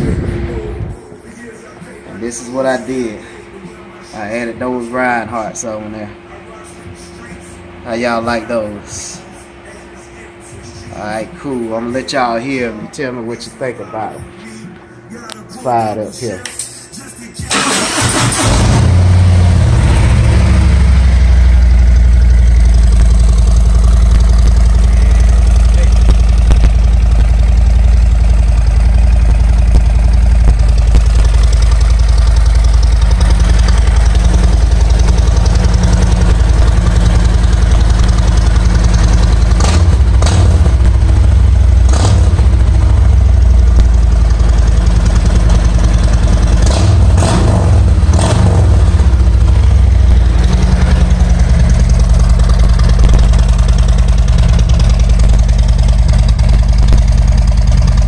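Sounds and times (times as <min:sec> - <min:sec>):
motorcycle throttle revving: 0:17.5 - 0:58.0
motorcycle engine idling: 0:19.0 - 0:58.0.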